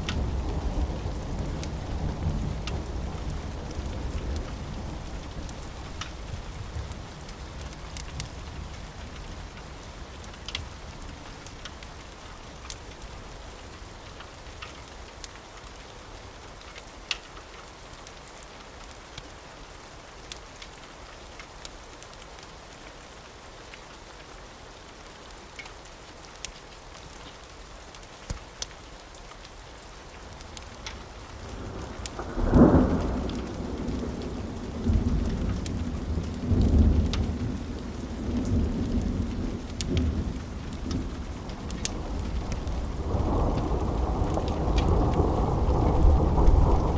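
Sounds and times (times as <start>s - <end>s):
steady rain: 0.0s - 46.9s
sharp crackles: 25.6s - 46.9s
thunder rumble: 31.4s - 46.9s
loud thunderclap: 40.8s - 46.9s.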